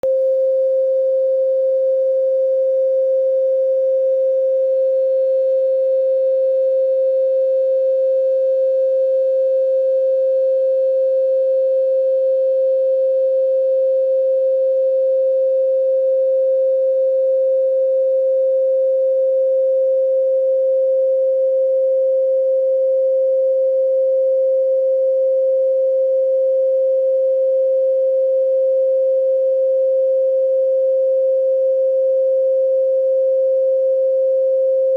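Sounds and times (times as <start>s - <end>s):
pure sine tone: 0.0s - 34.9s.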